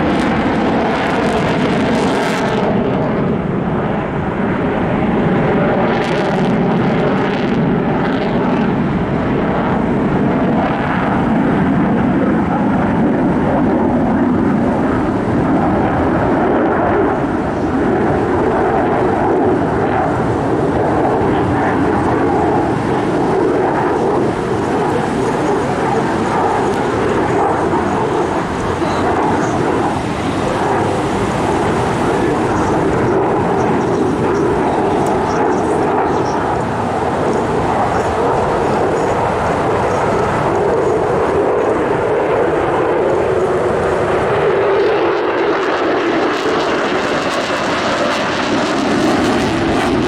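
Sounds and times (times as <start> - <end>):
loud jet engine noise: 0.0 - 50.0.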